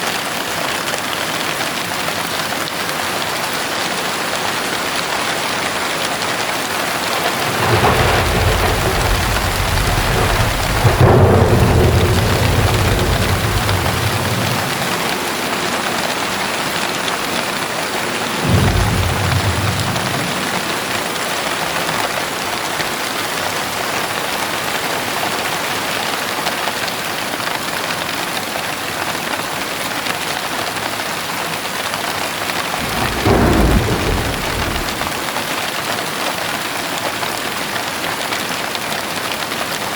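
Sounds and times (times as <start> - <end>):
heavy rain: 0.0 - 39.9
thunder clap: 5.8 - 22.2, 32.5 - 35.4
thunder rumbling: 6.4 - 22.1, 32.5 - 35.4.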